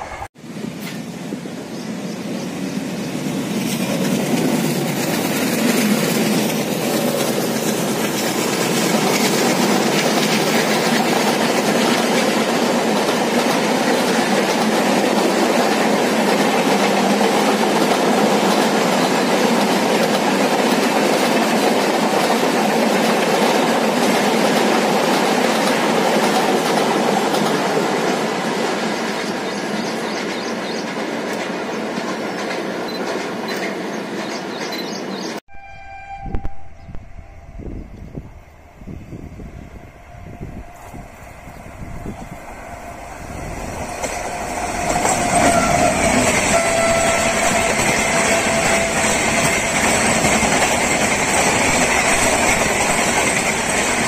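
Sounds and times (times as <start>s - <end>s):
train wheels clattering over joints: 43.6s - 54.0s.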